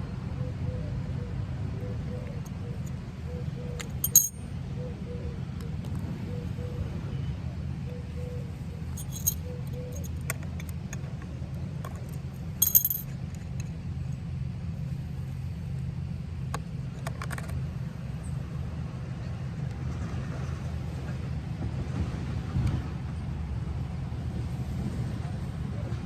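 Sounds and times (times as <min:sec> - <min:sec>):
metal hardware clinking: 0:03.8 - 0:04.4, 0:09.0 - 0:10.1, 0:12.6 - 0:13.1
steady low hum: 0:08.0 - 0:10.1.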